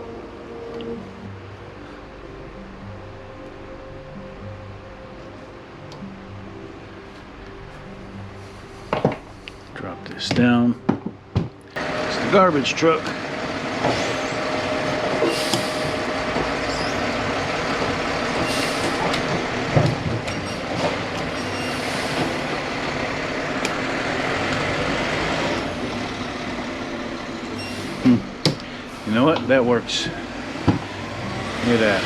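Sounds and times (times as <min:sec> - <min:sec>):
diesel engine running: 0:11.8 - 0:32.0
short hissing bursts: 0:15.2 - 0:16.1.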